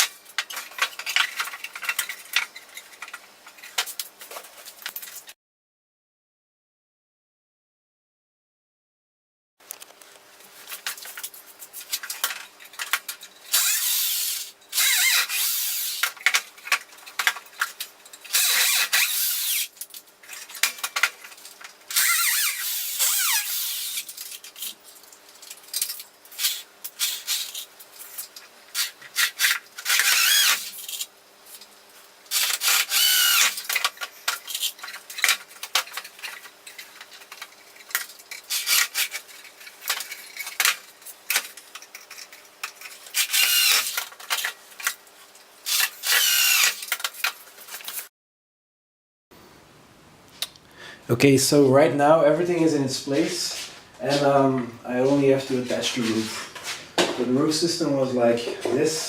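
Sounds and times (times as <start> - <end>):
wood and tools clattering: 0.0 - 5.4, 32.3 - 45.1
power drill drilling into wood: 13.5 - 16.0, 18.3 - 19.7, 21.9 - 24.0, 29.4 - 30.7, 32.3 - 33.6, 43.2 - 44.0, 45.7 - 46.8.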